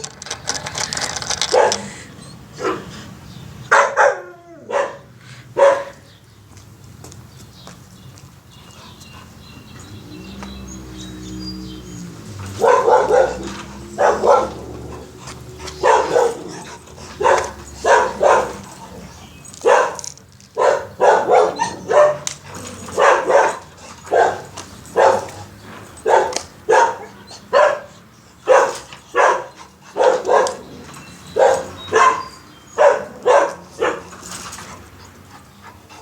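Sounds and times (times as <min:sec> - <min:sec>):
dog barking: 0:01.5 - 0:01.9, 0:03.7 - 0:06.0, 0:12.5 - 0:18.7, 0:19.6 - 0:25.4, 0:26.0 - 0:30.7, 0:31.3 - 0:34.1.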